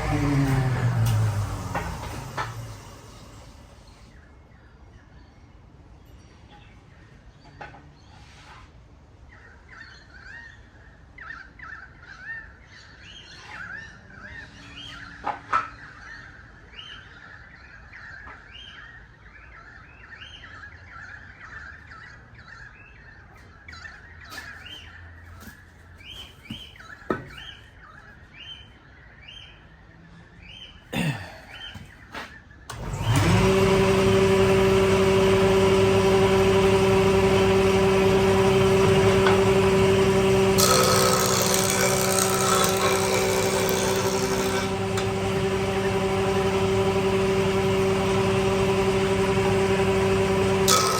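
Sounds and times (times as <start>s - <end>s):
electric power tool running: 0.0s - 4.2s, 32.7s - 50.9s
birds chirping: 9.4s - 50.9s.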